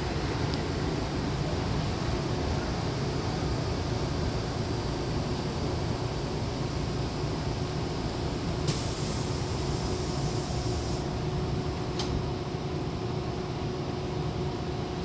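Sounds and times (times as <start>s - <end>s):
train door air hiss: 0.0s - 12.3s
low train hum: 0.0s - 15.0s
train door click: 11.8s - 12.2s.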